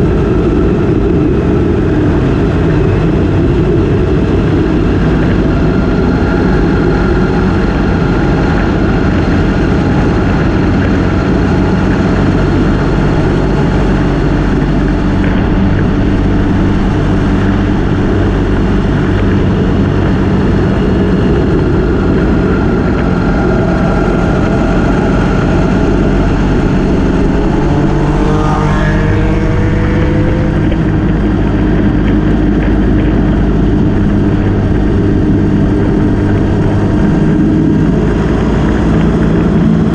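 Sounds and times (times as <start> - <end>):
motorcycle engine cruising: 0.0 - 39.9
wind rushing: 11.2 - 39.8
short rising whine: 22.2 - 32.4.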